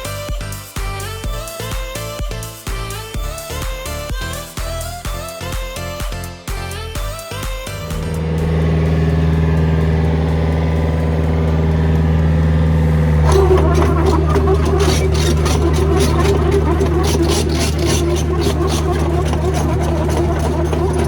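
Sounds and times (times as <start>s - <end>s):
rhythmic rattle: 7.2s - 12.6s, 13.2s - 21.0s
diesel engine running: 7.7s - 21.0s.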